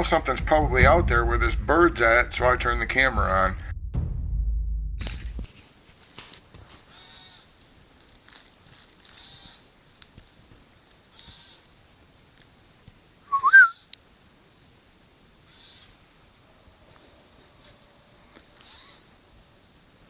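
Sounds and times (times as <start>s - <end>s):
bird harsh alarm calls: 6.9s - 7.5s, 15.5s - 16.0s, 18.6s - 19.1s
rising whistled note: 13.3s - 13.8s.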